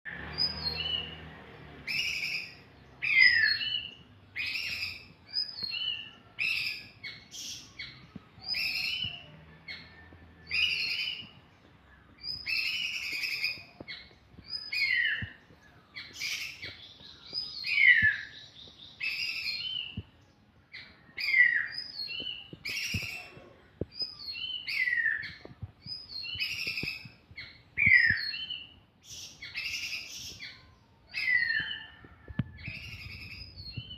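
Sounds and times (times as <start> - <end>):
songbird whistling phrases: 24.0 - 33.9.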